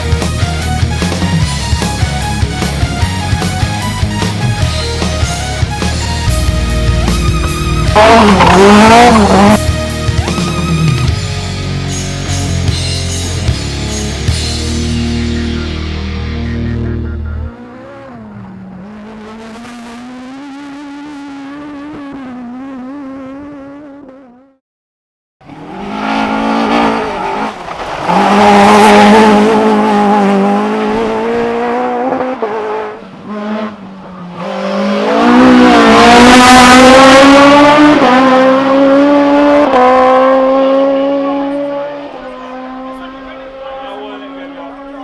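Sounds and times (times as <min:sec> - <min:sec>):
race car engines revving: 0:00.0 - 0:24.5, 0:25.4 - 0:45.0
car engine revving past: 0:06.0 - 0:11.3, 0:14.7 - 0:24.3, 0:25.4 - 0:45.0.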